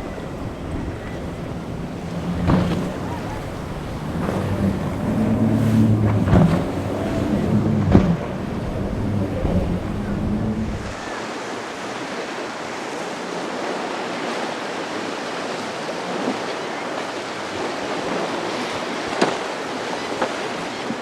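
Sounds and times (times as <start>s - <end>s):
water slapping against hull: 0.0s - 11.1s, 13.7s - 21.0s
wind buffeting microphone: 0.0s - 11.2s
boat engine humming: 0.0s - 20.8s.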